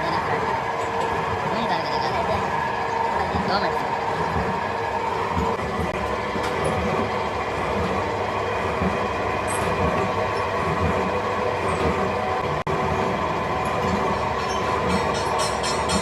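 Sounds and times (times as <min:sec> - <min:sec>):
constant machine hums: 0:00.0 - 0:16.0
heavy machinery rumbling: 0:00.0 - 0:16.0.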